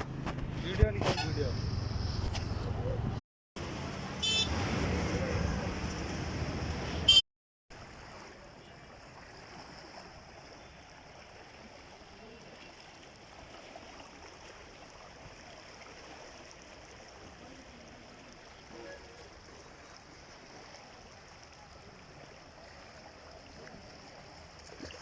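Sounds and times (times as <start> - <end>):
street noise: 0.0 - 7.2
faint flowing water: 3.6 - 25.0.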